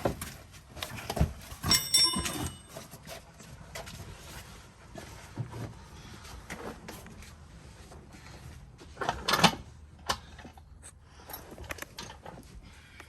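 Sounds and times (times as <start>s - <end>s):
metallic ringing clink: 1.6s - 2.9s
metal tools knocking together: 1.6s - 3.0s.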